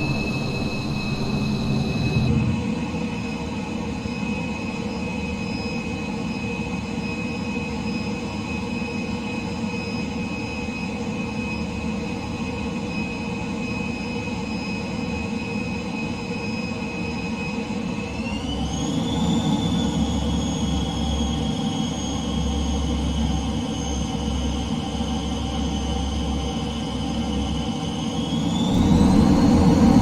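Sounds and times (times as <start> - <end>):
jet engines rumbling and whining: 0.0 - 30.0.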